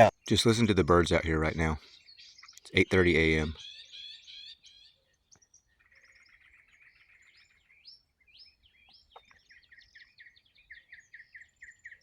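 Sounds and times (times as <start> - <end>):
birds chirping and singing: 0.0 - 12.0.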